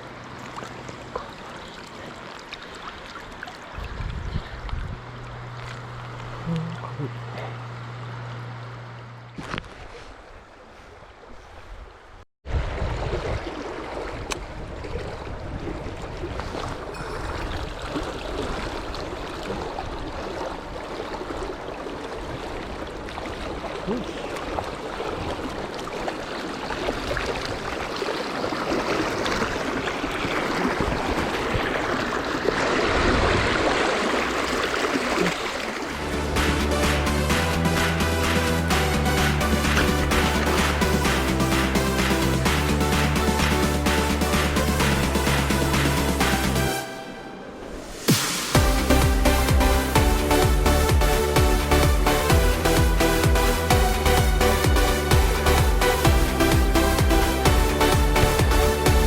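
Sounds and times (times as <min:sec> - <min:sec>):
low hum: 0:00.0 - 0:11.3, 0:16.7 - 0:24.2, 0:34.2 - 0:59.0
stream water rushing: 0:00.0 - 0:59.0.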